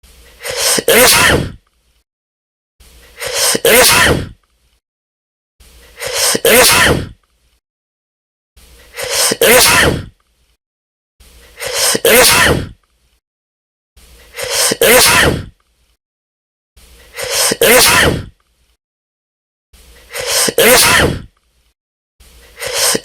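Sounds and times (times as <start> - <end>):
loud sneeze: 0.4 - 1.6, 3.2 - 4.4, 6.0 - 7.2, 9.0 - 10.2, 11.6 - 12.8, 14.3 - 15.6, 17.2 - 18.4, 20.1 - 21.3, 22.6 - 23.0.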